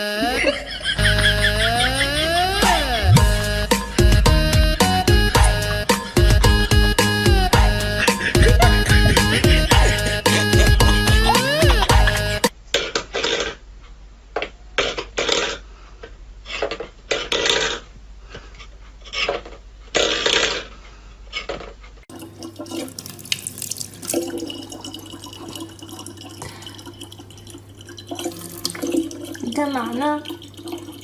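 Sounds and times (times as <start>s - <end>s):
low hum: 0.7s - 12.5s
water running from a tap: 22.1s - 31.0s.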